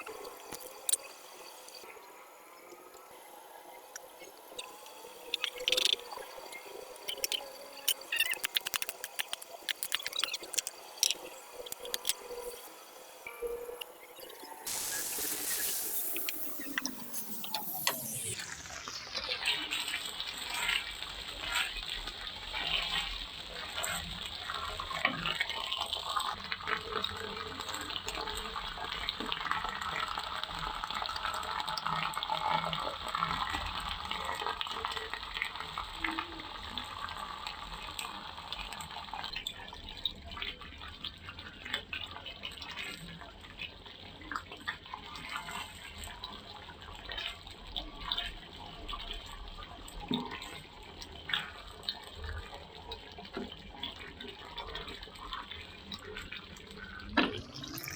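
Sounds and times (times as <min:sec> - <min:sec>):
tap water running into sink: 0:07.1 - 0:12.2, 0:14.7 - 0:18.1.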